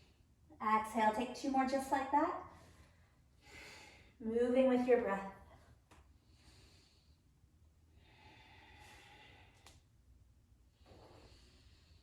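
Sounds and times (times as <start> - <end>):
breathing through the throat: 2.6 - 4.2, 8.0 - 9.8.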